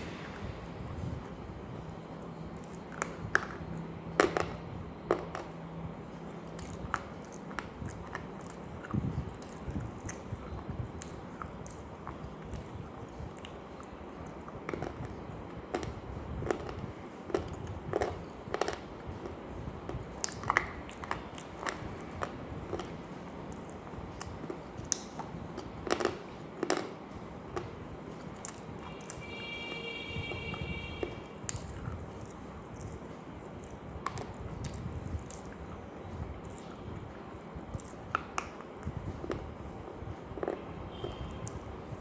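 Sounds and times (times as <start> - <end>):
crunchy food chewing: 31.0 - 35.8, 36.4 - 36.8, 37.7 - 39.4.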